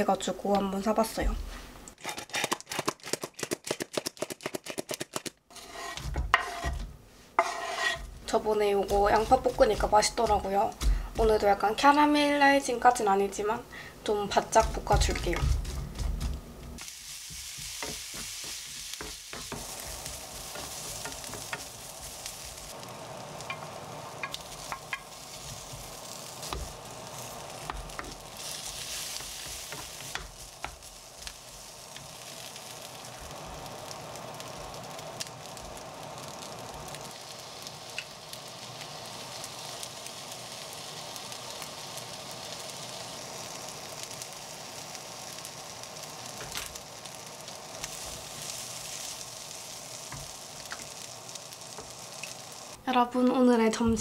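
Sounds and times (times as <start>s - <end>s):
wooden spatula scraping pan: 5.5s - 11.5s
food sizzling in a frying pan: 5.5s - 54.0s.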